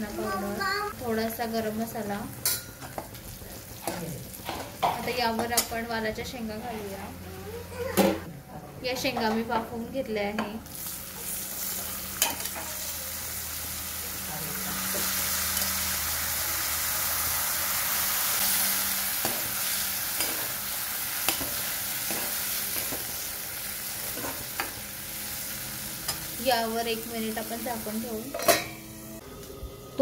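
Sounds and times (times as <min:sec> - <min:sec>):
pods sizzling in hot oil: 0:10.6 - 0:30.0.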